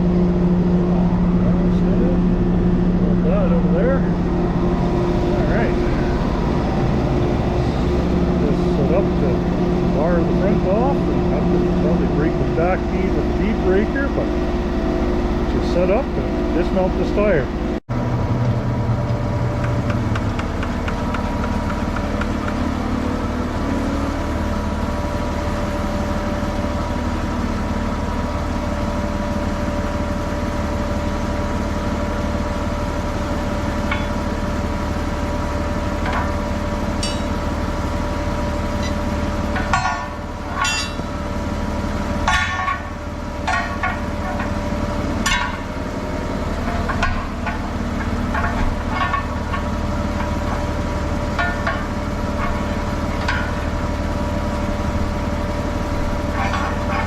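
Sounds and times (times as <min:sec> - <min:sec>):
truck engine drone: 0:00.0 - 0:57.0
sharp knocks: 0:19.5 - 0:22.7.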